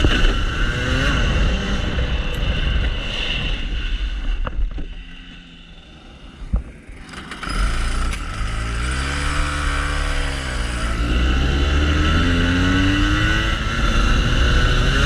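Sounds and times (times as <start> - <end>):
kart engine accelerating: 5.9 - 15.0.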